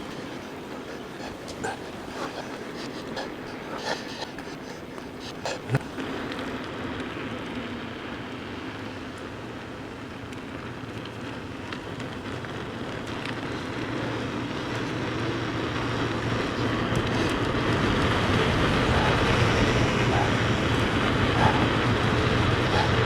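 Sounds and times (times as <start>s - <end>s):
tyres on track: 0.0s - 6.0s, 17.1s - 23.0s.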